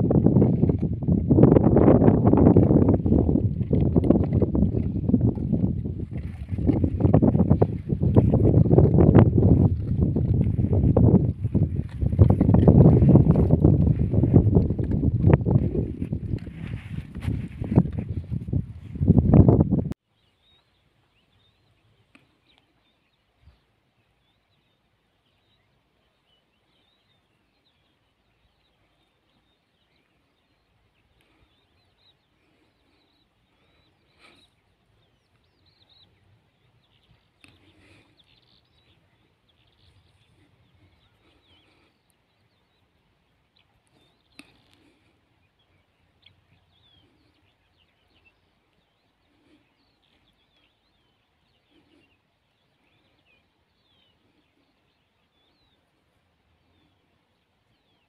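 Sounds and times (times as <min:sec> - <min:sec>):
faint bird chirping: 0:18.9 - 0:58.0.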